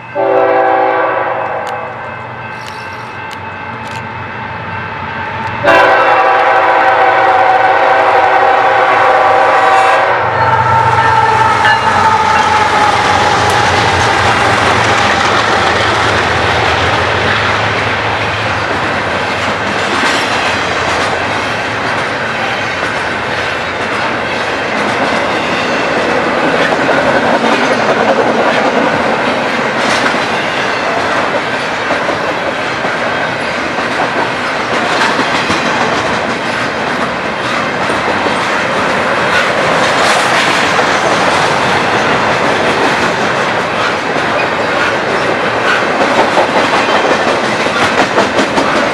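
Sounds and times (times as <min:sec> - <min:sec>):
freight train rumbling past: 0:00.0 - 0:48.9.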